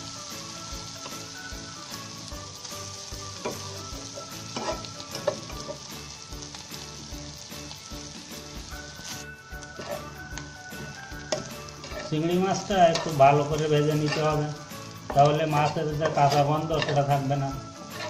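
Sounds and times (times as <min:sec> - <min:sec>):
food sizzling in hot oil: 0:00.0 - 0:18.0
metal spatula scraping and tapping: 0:04.2 - 0:05.8, 0:09.6 - 0:10.4, 0:11.3 - 0:12.2, 0:12.8 - 0:14.4, 0:15.1 - 0:17.2.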